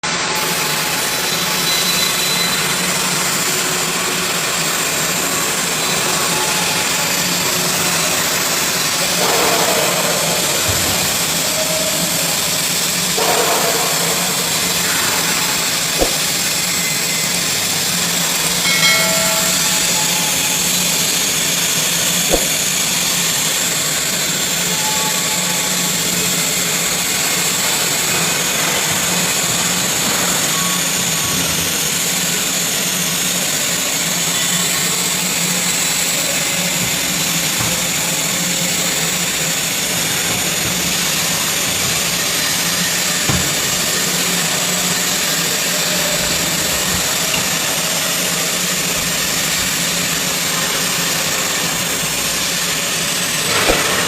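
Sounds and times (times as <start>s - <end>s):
welding arc hissing and buzzing: 0.1s - 54.0s.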